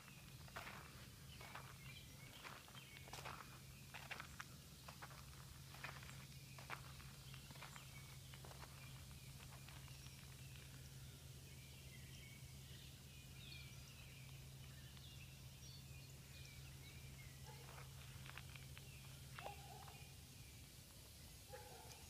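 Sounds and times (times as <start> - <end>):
footsteps on dry leaves: 0.0 - 10.9, 17.5 - 20.0
faint songbird chirps: 0.0 - 22.0.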